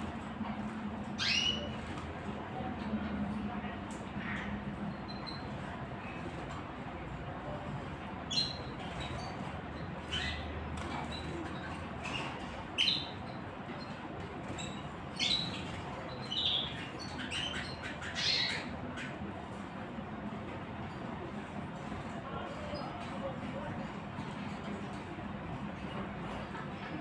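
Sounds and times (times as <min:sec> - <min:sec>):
small birds chirping: 0:01.0 - 0:02.3, 0:03.9 - 0:06.3, 0:07.9 - 0:20.0.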